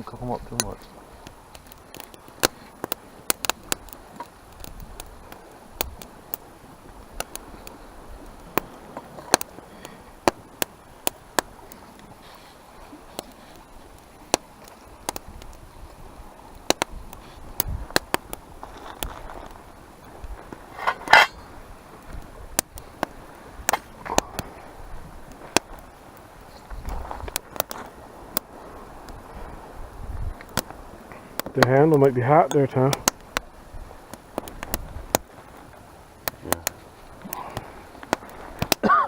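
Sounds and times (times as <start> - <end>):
sharp pops: 0.0 - 6.4, 8.5 - 11.6, 16.6 - 19.6, 20.8 - 24.5, 25.4 - 25.9, 30.4 - 33.5, 34.1 - 35.3, 36.2 - 39.0
wood fire crackling: 0.0 - 39.0.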